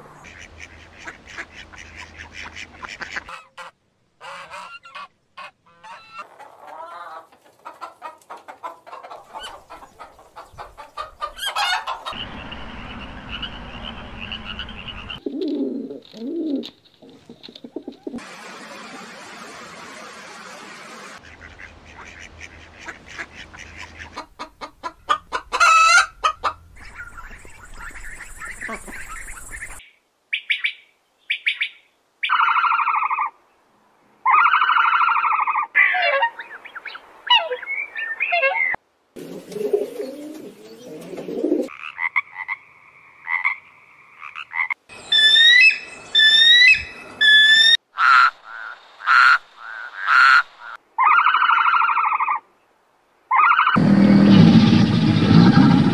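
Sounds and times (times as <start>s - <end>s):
bird calls: 9.3s - 15.3s, 26.8s - 33.3s, 44.2s - 52.4s
duck calling: 11.3s - 15.2s, 21.2s - 28.0s
frog calling: 12.1s - 15.2s.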